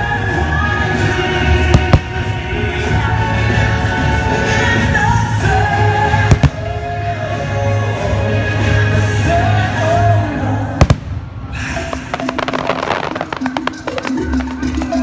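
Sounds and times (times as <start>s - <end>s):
music over outdoor loudspeakers: 0.0s - 15.0s
firework bangs: 1.7s - 2.4s, 10.8s - 15.0s.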